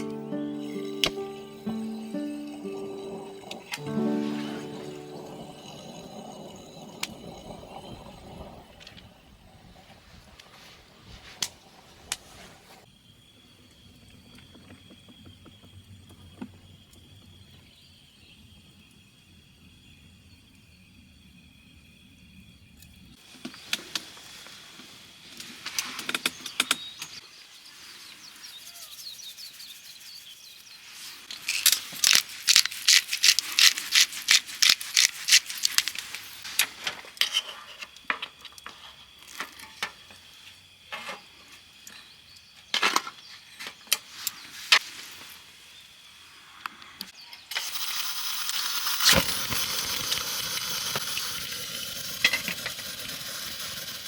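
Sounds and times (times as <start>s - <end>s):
food sizzling on hot surface: 0.0s - 12.9s, 47.5s - 54.0s.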